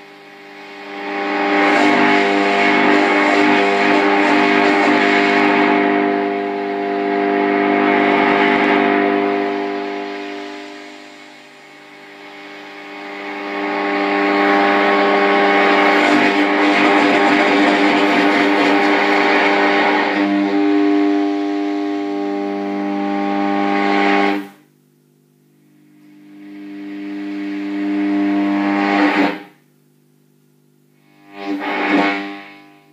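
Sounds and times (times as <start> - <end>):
radio drone tones: 0.2 - 24.4
radio rushing noise: 1.4 - 6.7, 13.1 - 20.9.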